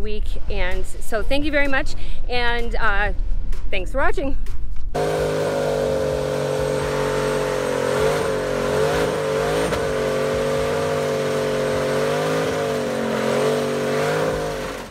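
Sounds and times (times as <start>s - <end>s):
car engine revving high: 5.0s - 14.9s
spinning tyres hissing: 5.0s - 14.9s.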